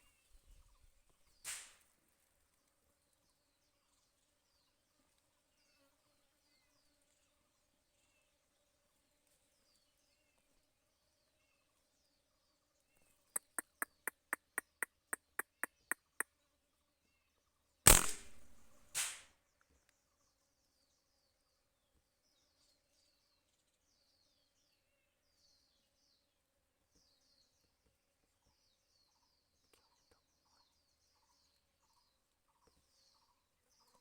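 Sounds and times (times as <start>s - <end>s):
gunshot: 1.5s - 1.8s, 17.9s - 19.3s
short crack: 1.5s - 1.8s, 17.9s - 19.3s
faint birds chirping: 2.3s - 34.0s
sharp even clicks: 17.9s - 19.2s.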